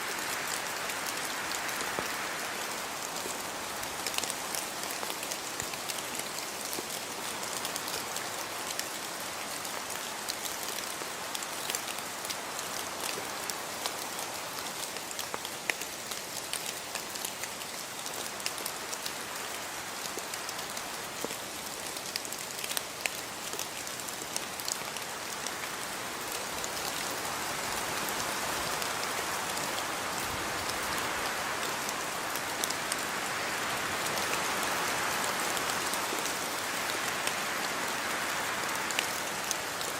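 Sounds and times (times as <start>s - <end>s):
raindrops ticking on a surface: 0.1s - 39.9s.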